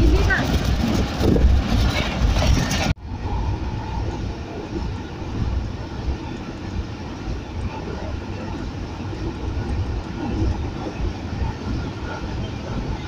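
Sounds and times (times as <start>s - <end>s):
freight train passing: 0.0s - 13.0s
train running rumble: 0.0s - 13.0s.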